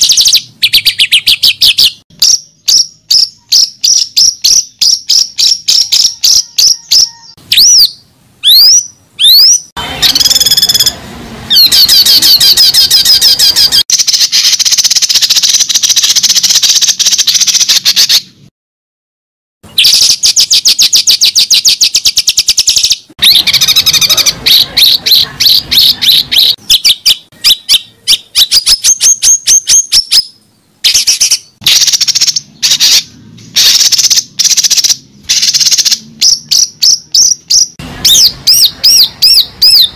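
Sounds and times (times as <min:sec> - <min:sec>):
downward whistled bird notes: 0:00.0 - 0:10.9
bird chirping and trilling: 0:00.0 - 0:18.4, 0:19.6 - 0:39.9.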